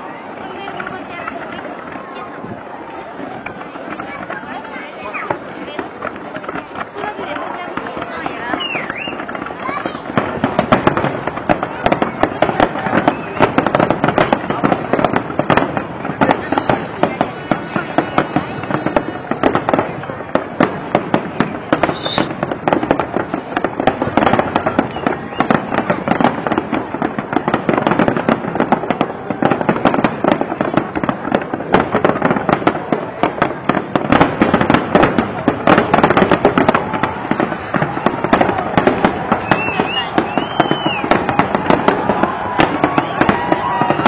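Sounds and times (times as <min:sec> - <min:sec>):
fireworks bangs and crackling: 0:00.0 - 0:44.0
high fireworks whistles: 0:02.6 - 0:44.0.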